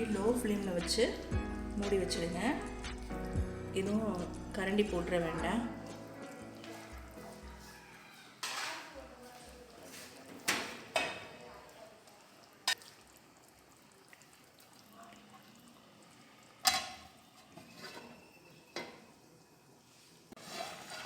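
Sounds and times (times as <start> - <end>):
metal pots and utensils clinking: 8.4 - 9.0, 10.2 - 11.5, 16.6 - 19.2, 20.4 - 21.0.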